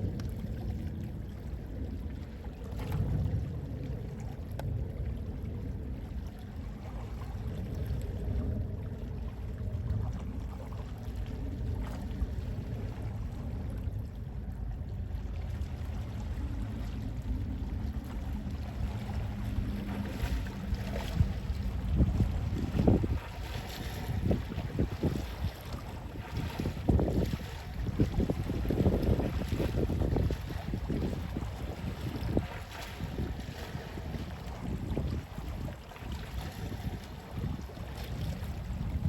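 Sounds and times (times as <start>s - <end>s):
sea wind: 0.0s - 39.0s
sea waves washing: 15.9s - 39.0s.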